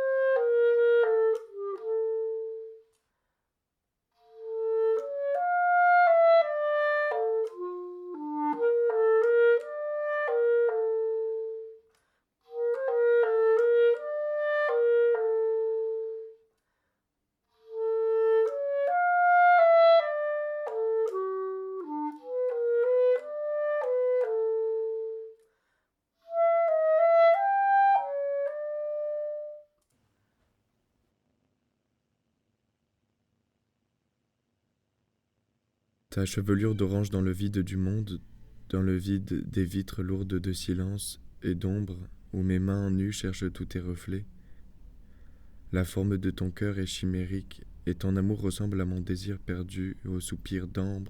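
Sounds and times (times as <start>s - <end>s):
solo woodwind melody: 0.0s - 3.0s, 4.2s - 11.9s, 12.5s - 16.5s, 17.6s - 25.4s, 26.2s - 29.7s, 36.2s - 51.0s.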